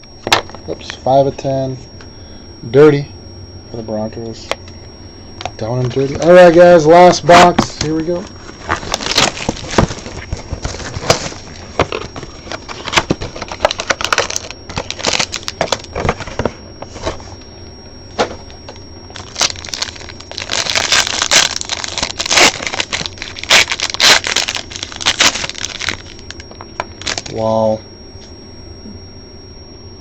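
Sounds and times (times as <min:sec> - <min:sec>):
plastic wrap crinkling and tearing: 0:07.6 - 0:16.4, 0:19.1 - 0:27.4.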